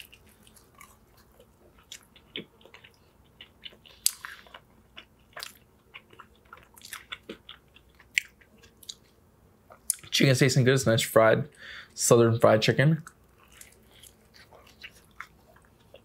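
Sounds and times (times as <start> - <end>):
chewing crunchy sandwich: 0.0 - 10.1, 13.0 - 16.0.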